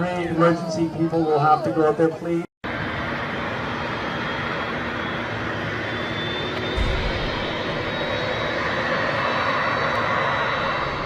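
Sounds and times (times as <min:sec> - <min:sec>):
aircraft engine drone: 0:02.6 - 0:11.0
faint high whine: 0:02.7 - 0:11.0.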